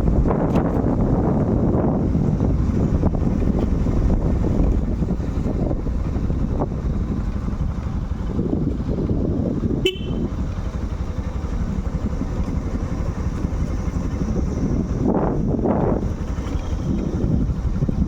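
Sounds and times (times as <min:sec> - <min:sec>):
motorcycle engine: 0:00.0 - 0:18.0
wind rumble on microphone: 0:00.0 - 0:18.0
short horn toot: 0:09.8 - 0:10.3.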